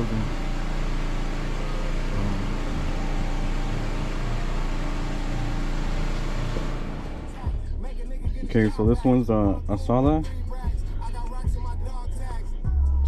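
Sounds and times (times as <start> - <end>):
machine hum: 0.0 - 7.9.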